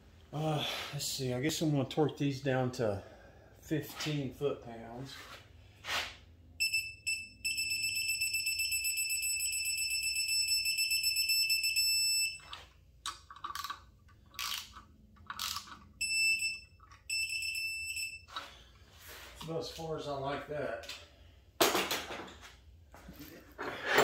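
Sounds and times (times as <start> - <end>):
torque wrench beeping: 6.6 - 12.6, 15.4 - 18.4
wrench clicks: 13.1 - 15.8.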